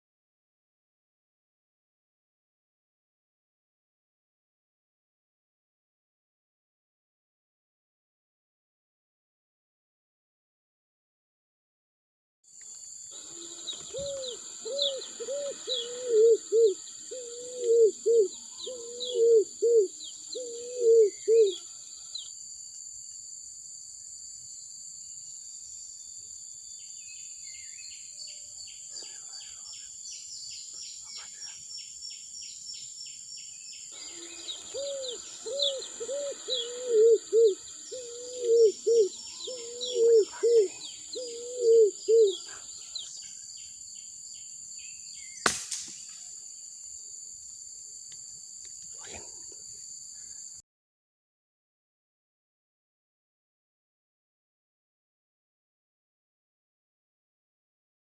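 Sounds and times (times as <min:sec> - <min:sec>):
small birds chirping: 0:12.6 - 0:22.4, 0:26.2 - 0:46.4
bird whistling song: 0:13.3 - 0:21.6, 0:34.0 - 0:43.2.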